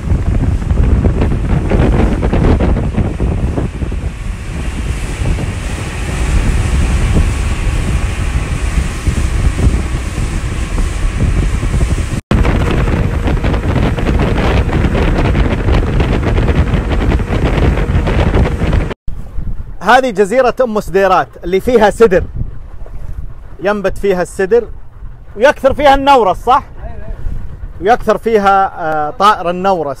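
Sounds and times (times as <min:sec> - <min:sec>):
water rushing: 0:00.0 - 0:19.0
wind buffeting microphone: 0:00.0 - 0:30.0.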